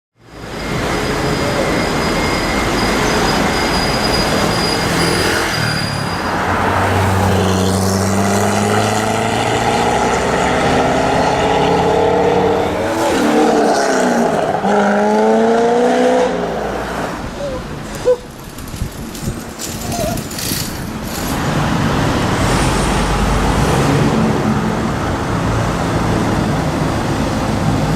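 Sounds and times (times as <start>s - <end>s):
loud car engine revving: 7.3s - 16.8s.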